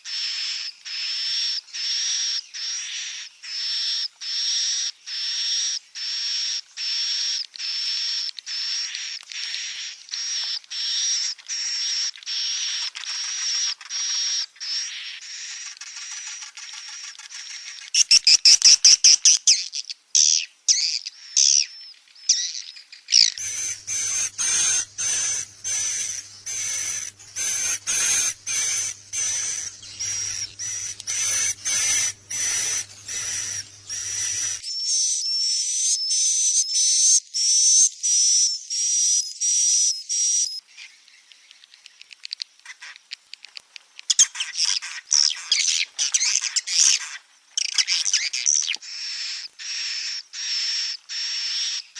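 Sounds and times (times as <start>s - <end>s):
faint low hum: 23.4s - 34.6s
swiftlet chirps and twittering: 23.4s - 35.1s.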